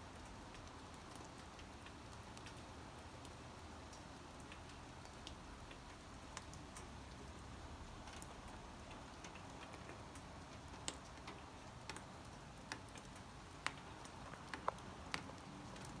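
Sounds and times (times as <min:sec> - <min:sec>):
raindrops ticking: 0:00.1 - 0:16.0.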